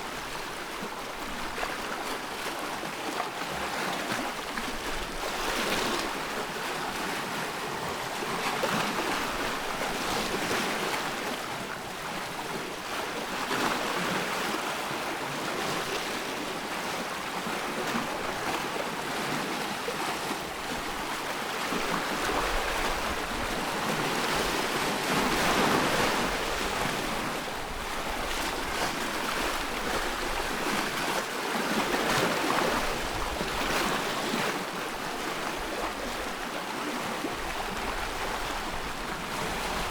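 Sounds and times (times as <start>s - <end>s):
ocean waves breaking: 15.5s - 39.9s.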